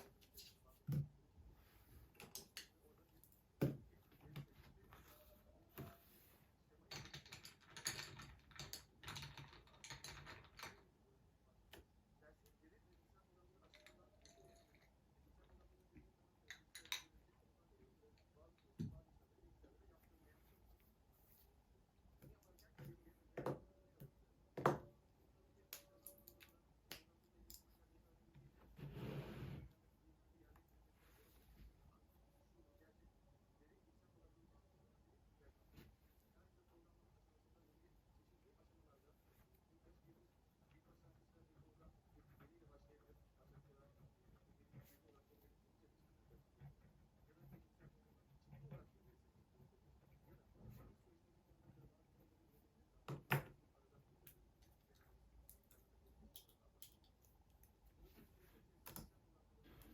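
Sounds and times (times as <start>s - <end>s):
typing on keyboard: 6.9s - 10.9s.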